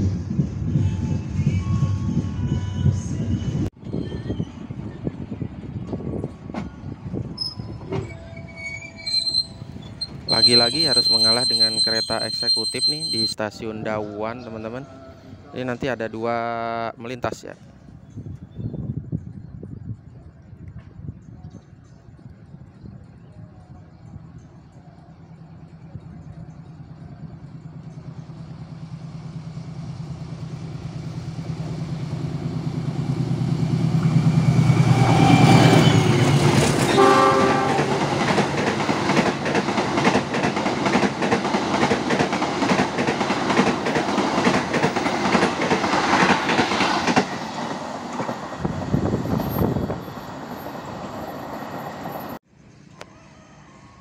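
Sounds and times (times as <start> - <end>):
diesel locomotive rumble: 0.0 - 16.2, 17.6 - 53.0
train horn: 34.4 - 38.1
train wheels clattering over rail joints: 37.7 - 48.4.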